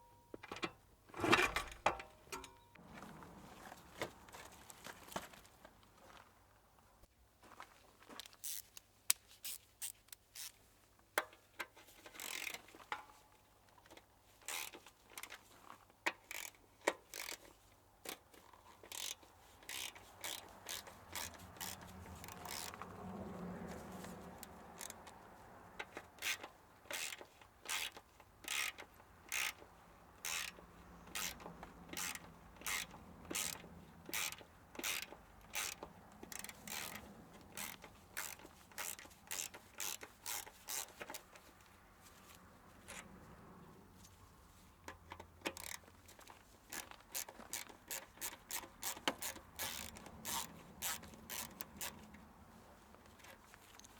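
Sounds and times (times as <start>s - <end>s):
sharp mechanical clicks: 30.2s - 41.2s, 46.8s - 52.1s.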